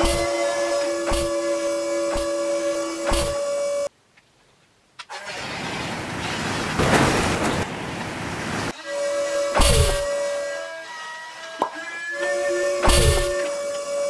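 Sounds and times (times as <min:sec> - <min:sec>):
engine starting rush: 0:05.1 - 0:07.7.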